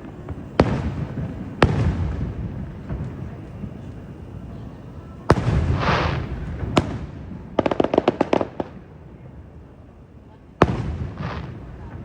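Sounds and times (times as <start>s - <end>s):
hissing crackle: 0.0s - 8.8s
sharp firework pops: 0.0s - 8.9s
firework booms: 0.0s - 9.0s, 10.6s - 12.0s.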